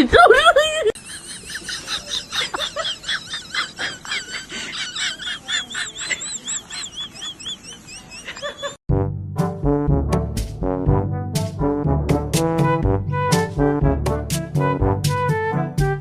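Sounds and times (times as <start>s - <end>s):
high-pitched chirping animal calls: 4.5s - 8.8s
brass music: 8.9s - 16.0s.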